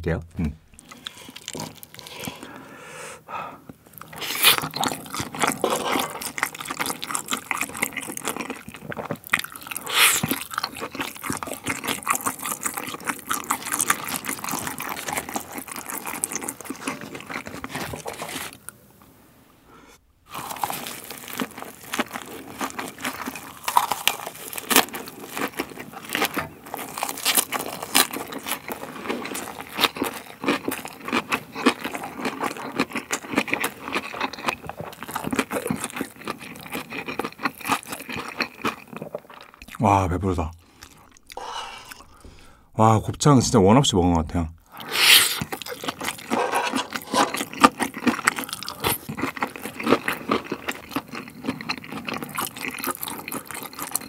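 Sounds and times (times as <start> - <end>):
wet chewing and smacking: 0.8 - 2.5, 3.7 - 18.7, 20.4 - 39.8, 40.6 - 42.3, 44.7 - 54.0
crunching leafy wrap: 20.4 - 33.2.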